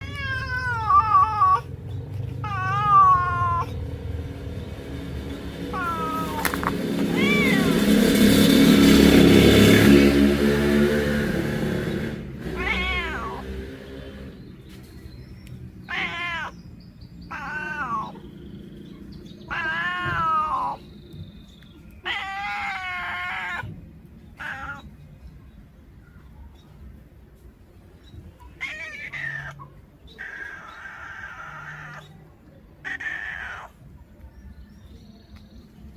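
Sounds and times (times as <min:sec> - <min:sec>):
cat meowing: 0:00.0 - 0:01.8, 0:02.4 - 0:03.9, 0:05.7 - 0:08.4, 0:12.5 - 0:13.6, 0:15.8 - 0:16.6, 0:17.3 - 0:18.3, 0:19.4 - 0:20.8, 0:21.9 - 0:25.0, 0:28.4 - 0:32.2, 0:32.8 - 0:33.9
loud noise: 0:02.4 - 0:14.3.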